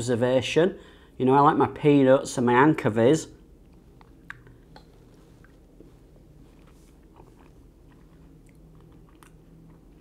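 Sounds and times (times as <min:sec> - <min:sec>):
mouth clicks and smacks chewing: 0:03.6 - 0:05.6, 0:06.6 - 0:10.0.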